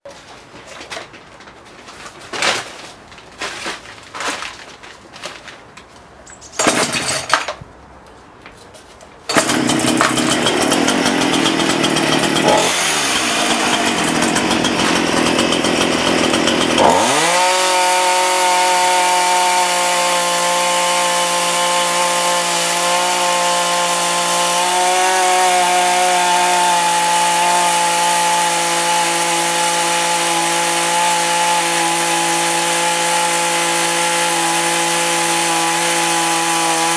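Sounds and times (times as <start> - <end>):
chainsaw cutting metal: 6.6 - 7.6, 9.3 - 36.9.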